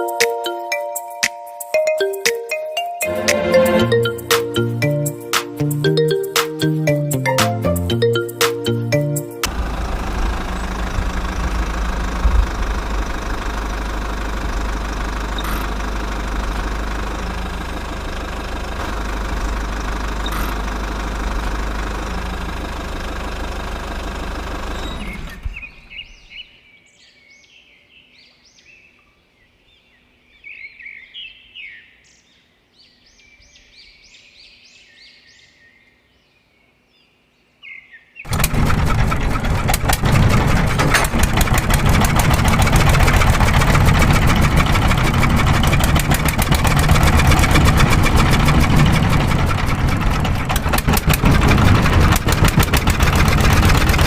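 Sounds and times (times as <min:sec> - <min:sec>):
small engine running: 0:09.4 - 0:25.9, 0:38.3 - 0:54.0.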